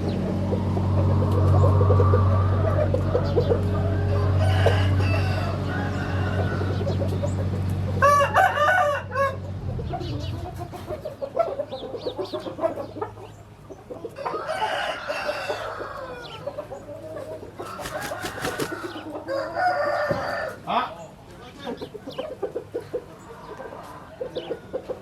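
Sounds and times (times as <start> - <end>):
roosters crowing: 0.1 - 21.1, 22.2 - 25.0
clucking calls: 9.6 - 20.2, 21.0 - 25.0.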